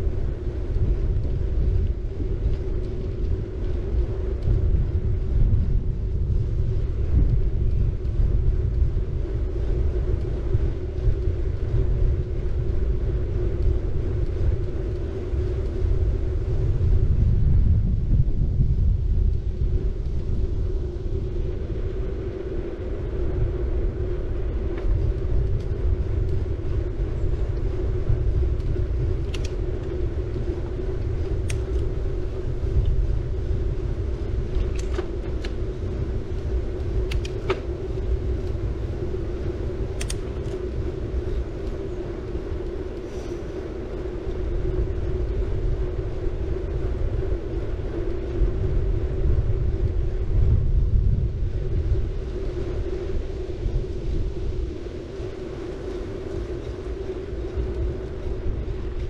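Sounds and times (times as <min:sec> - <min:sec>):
bike tyres rolling: 0:00.0 - 0:59.0
rushing air: 0:09.1 - 0:59.0
sharp ticks: 0:40.0 - 0:40.6.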